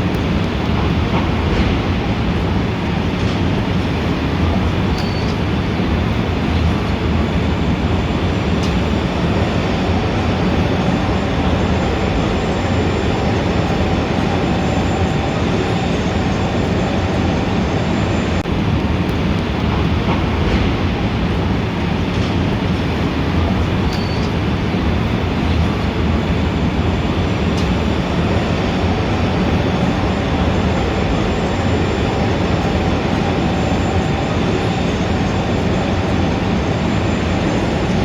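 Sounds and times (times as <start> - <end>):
dense city traffic rumble: 0.0 - 38.0.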